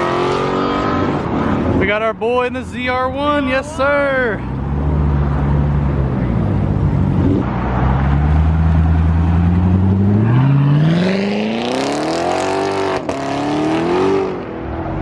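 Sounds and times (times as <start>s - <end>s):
car engine accelerating: 4.4s - 15.0s.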